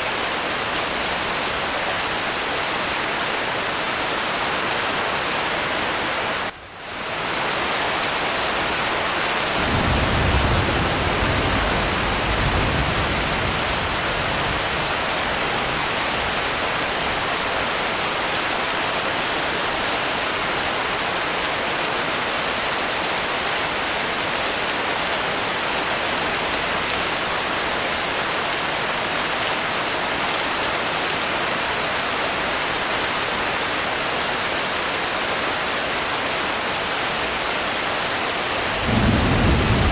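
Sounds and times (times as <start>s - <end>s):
dense rainfall hiss: 0.0s - 39.9s
distant thunder rumble: 9.6s - 16.6s, 38.8s - 39.9s.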